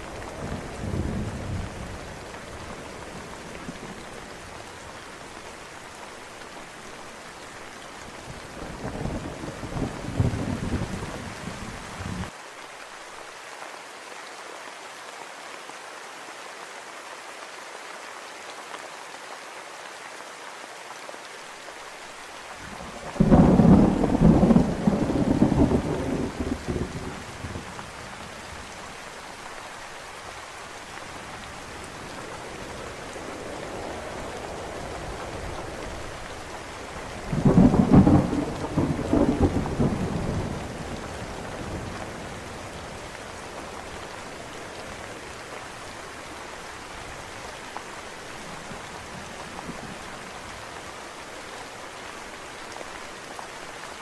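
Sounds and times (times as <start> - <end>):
steady rain: 0.0 - 54.0
thunder rolling: 22.9 - 27.8, 37.2 - 41.0.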